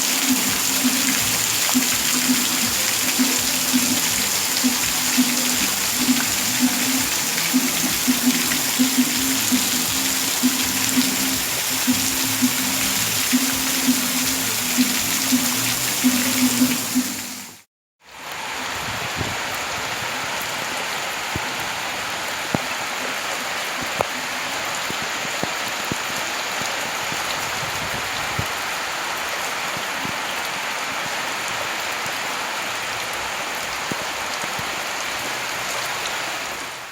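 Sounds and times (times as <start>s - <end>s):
heavy rain falling: 0.0s - 17.6s, 18.2s - 36.9s
music with steady beat: 0.0s - 17.6s.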